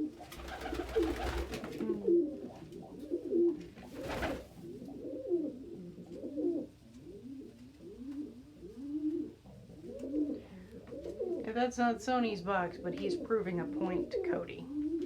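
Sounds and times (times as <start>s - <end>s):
pigeons cooing: 0.0s - 11.5s, 12.7s - 15.0s.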